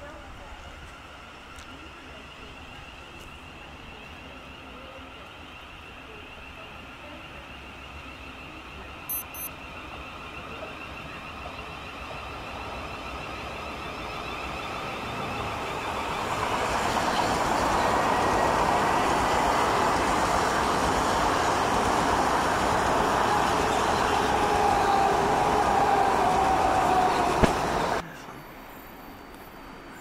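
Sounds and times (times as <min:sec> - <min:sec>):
train rumble: 0:00.0 - 0:30.0
thin whine: 0:09.1 - 0:09.5.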